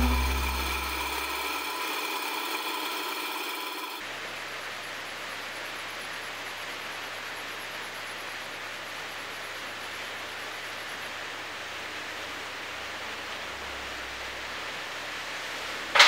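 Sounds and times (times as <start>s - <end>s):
lathe humming and whining: 0.0s - 4.0s.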